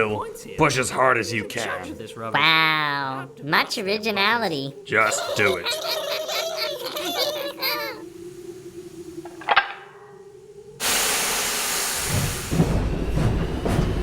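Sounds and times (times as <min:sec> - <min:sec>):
steam engine rumble: 0:10.8 - 0:14.0
steam hiss: 0:10.8 - 0:14.0.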